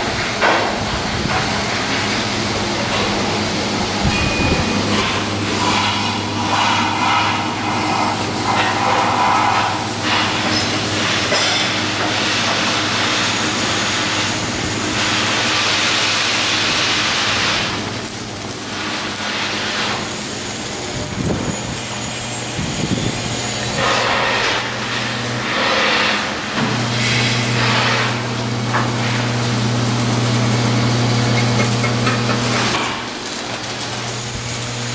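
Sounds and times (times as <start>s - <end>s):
steady machine hum: 0.0s - 34.9s.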